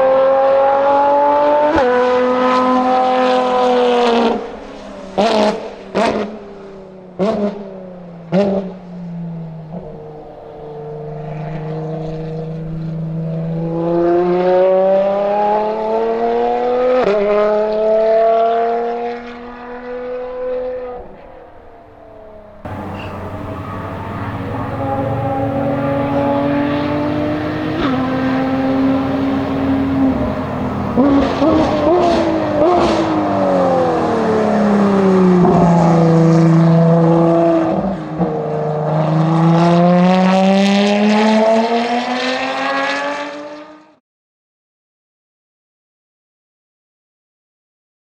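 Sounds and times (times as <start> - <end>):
racing car engine running: 22.7 - 37.9.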